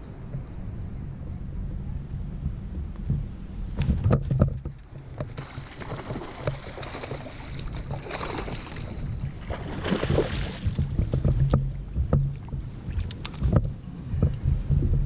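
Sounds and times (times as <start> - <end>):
wind rumble on microphone: 0.0 - 15.0
water splashing and sloshing: 3.0 - 15.0
knocks against kayak hull: 9.9 - 15.0.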